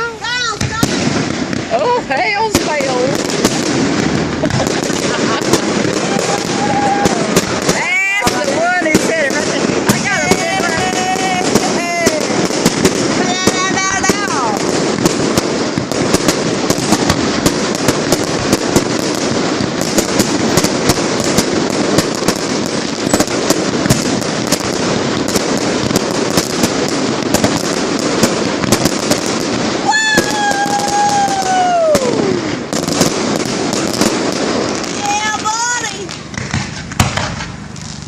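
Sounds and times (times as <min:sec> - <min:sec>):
fireworks crackling and popping: 0:00.0 - 0:38.0
firework whistle: 0:04.4 - 0:14.6, 0:15.3 - 0:24.7, 0:29.6 - 0:34.1.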